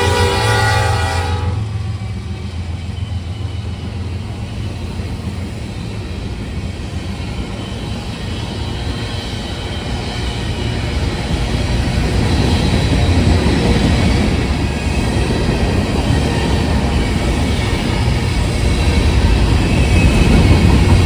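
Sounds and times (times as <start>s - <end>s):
locomotive air horn chord: 0.0s - 1.8s
passing train rumble: 0.0s - 21.0s.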